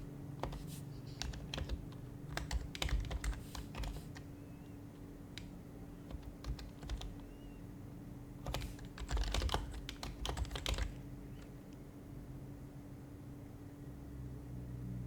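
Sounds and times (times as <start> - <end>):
typing on quiet keyboard: 0.0 - 4.3, 5.0 - 7.4, 8.4 - 11.6.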